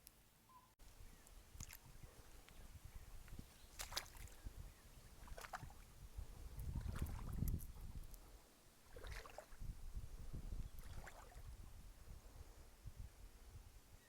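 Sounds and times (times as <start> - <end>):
wind rumbling on microphone: 0.9 - 14.0
faint water splashes: 1.1 - 11.8.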